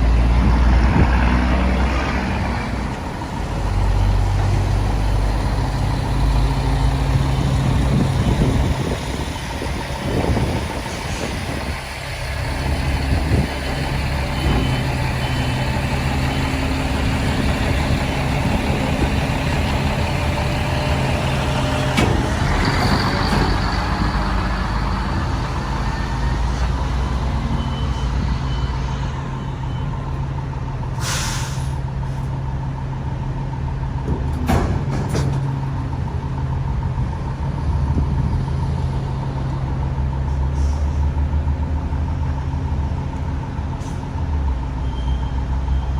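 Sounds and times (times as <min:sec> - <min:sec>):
garbage truck diesel engine running: 0:02.4 - 0:45.9
sharp hiss of released air: 0:31.0 - 0:31.8.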